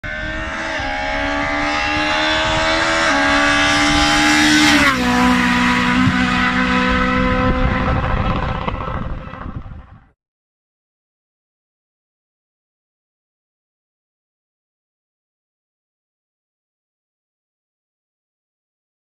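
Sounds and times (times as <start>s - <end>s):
race car engine at high revs: 0.0s - 9.7s.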